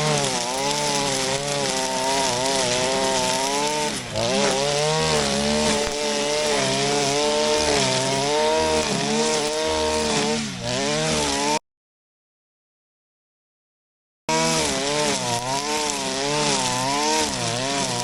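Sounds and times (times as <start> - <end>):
brush cutter cutting grass: 0.0 - 11.6, 14.3 - 18.0.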